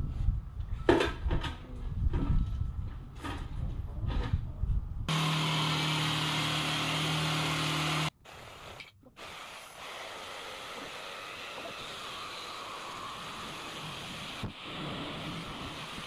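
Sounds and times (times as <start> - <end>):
power saw running: 5.1 - 8.1.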